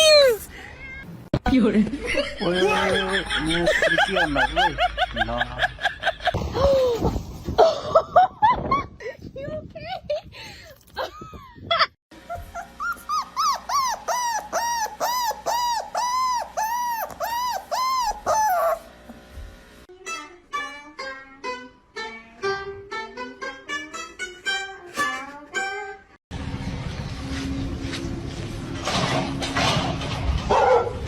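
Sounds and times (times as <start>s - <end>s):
dog whining: 0.0s - 0.5s, 12.2s - 19.0s
dog yelping: 0.0s - 0.5s, 12.3s - 18.9s
music: 19.9s - 26.2s.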